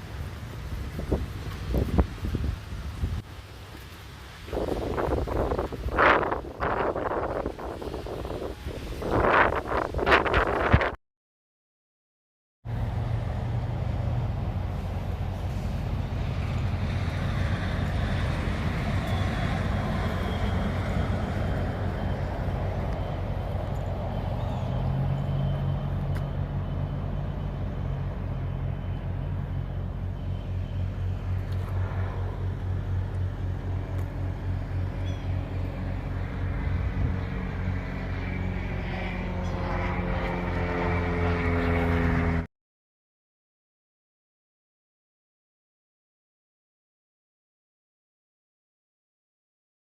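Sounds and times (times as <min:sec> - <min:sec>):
truck diesel engine running: 0:12.7 - 0:38.6.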